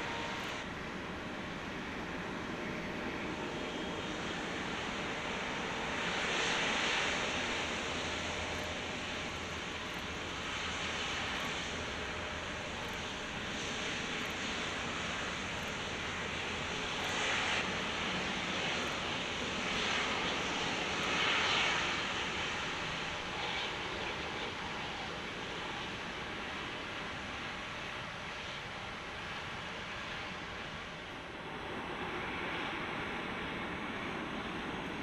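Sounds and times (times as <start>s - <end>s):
jet engines running: 0.0s - 35.0s.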